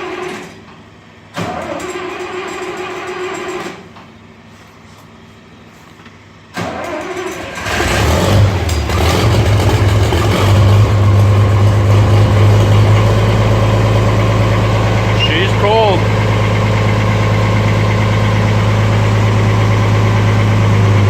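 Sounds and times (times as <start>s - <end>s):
tractor engine running: 6.5s - 21.0s.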